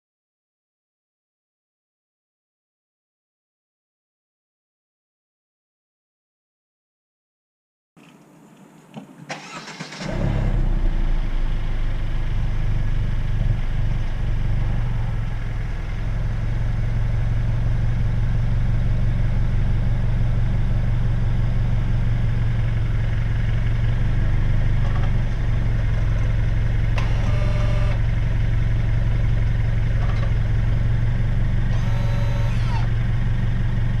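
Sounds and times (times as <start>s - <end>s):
car engine cranking and idling: 9.3s - 34.0s.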